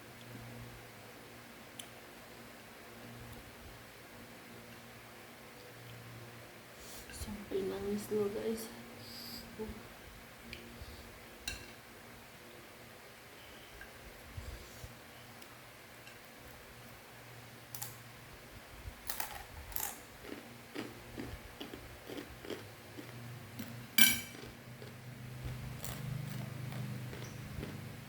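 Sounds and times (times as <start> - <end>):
chewing crunchy snack: 19.1 - 28.0.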